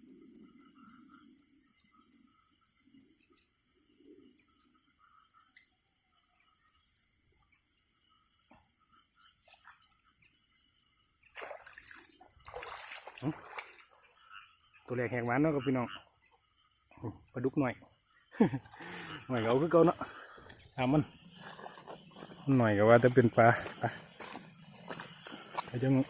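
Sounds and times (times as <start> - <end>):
crickets chirping: 0.0 - 26.0
high insect trill: 0.0 - 26.0.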